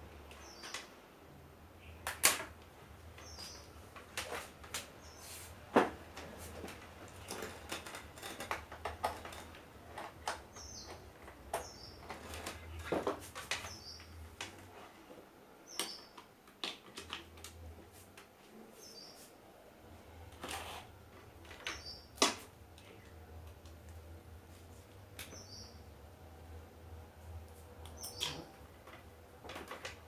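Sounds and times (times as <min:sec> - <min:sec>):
clicks and knocks of handling: 0:02.0 - 0:05.1, 0:05.7 - 0:18.3, 0:20.3 - 0:24.0, 0:27.8 - 0:30.0.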